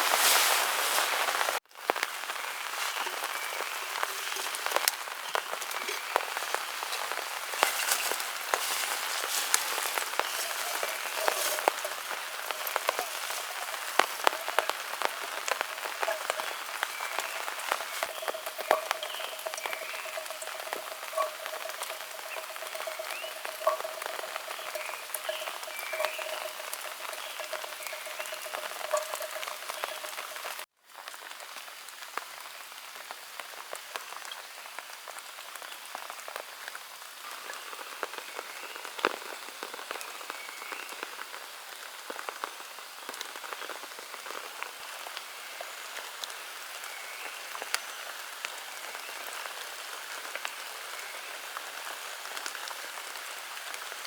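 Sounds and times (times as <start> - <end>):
steady rain: 0.0 - 54.0
pulsing call: 18.0 - 30.6.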